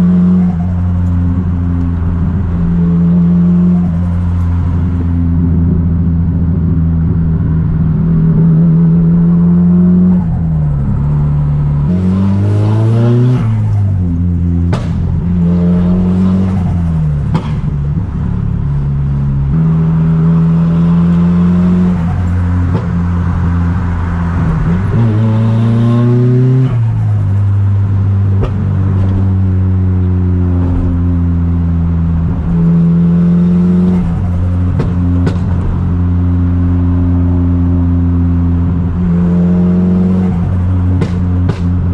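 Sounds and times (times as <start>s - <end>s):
car engine accelerating through gears: 0.0s - 41.9s
exhaust cracks: 13.0s - 20.8s, 33.9s - 36.2s, 40.3s - 41.9s.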